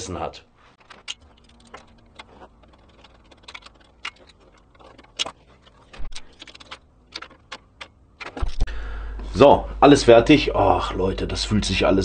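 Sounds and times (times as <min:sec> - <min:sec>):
metallic clicks of hand tools: 0:00.8 - 0:08.7.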